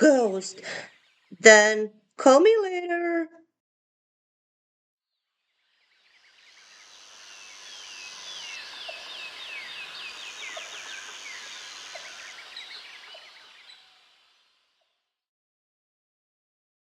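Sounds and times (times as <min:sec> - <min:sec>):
birds chirping and trilling: 0:00.0 - 0:01.6, 0:05.6 - 0:15.0.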